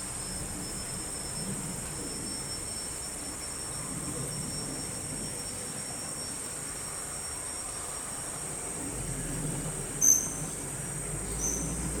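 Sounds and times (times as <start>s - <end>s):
high-pitched insect drone: 10.0s - 10.7s, 11.3s - 12.0s.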